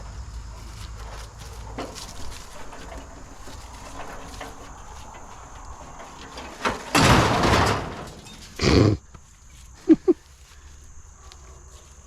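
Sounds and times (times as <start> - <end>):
scrap metal scraping clatter: 0.9 - 8.7.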